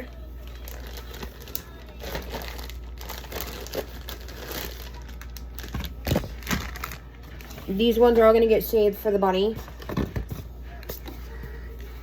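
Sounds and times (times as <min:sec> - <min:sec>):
packaging rustling and crinkling: 0:00.0 - 0:08.2.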